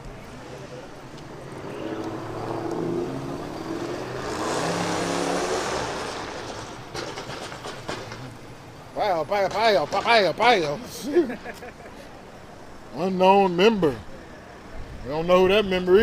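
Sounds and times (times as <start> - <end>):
car engine accelerating: 0.4 - 7.0.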